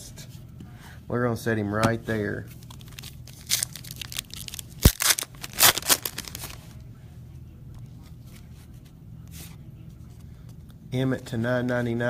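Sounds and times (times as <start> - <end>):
cards being handled: 2.5 - 6.8
wrappers crinkling and tearing: 2.6 - 6.8.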